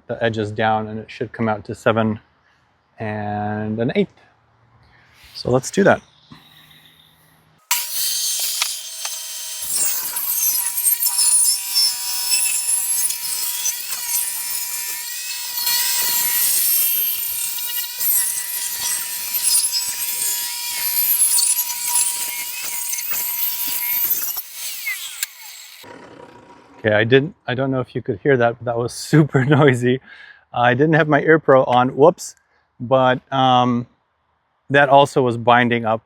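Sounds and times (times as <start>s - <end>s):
saw blade squealing: 5.2s - 25.8s
table saw motor whining: 6.3s - 25.9s.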